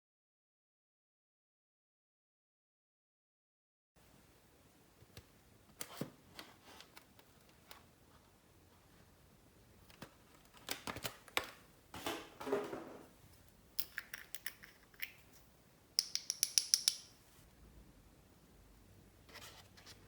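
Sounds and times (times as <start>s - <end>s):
bright clicks: 16.0s - 17.2s.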